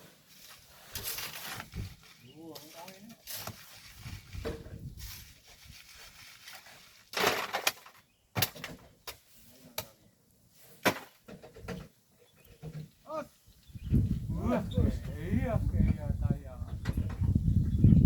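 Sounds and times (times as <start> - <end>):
hand tools scraping on sand: 0.0 - 7.1.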